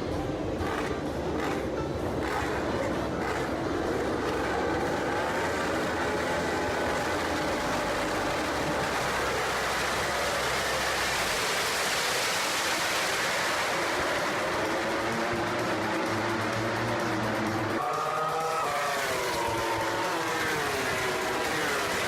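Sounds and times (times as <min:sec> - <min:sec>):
passing vehicle engine hum: 0:00.0 - 0:22.0
vehicle rushing noise: 0:00.0 - 0:22.0.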